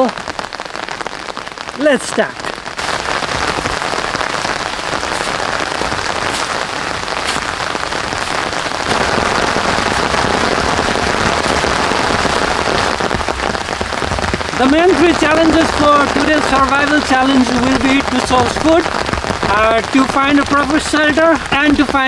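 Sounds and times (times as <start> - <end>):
heavy rain on foliage: 0.0 - 22.0.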